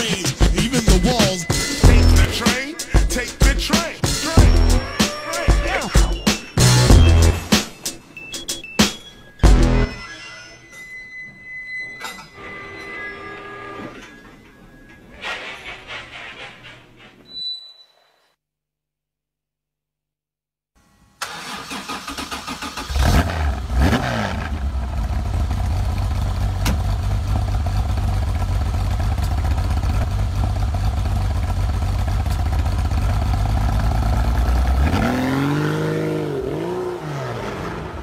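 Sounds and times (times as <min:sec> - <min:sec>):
engine cranking on starter: 0:21.2 - 0:24.2
engine running: 0:22.9 - 0:38.0.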